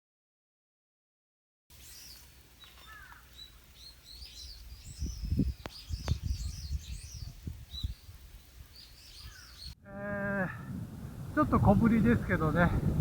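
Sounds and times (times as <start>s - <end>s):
small birds chirping: 1.7s - 9.8s.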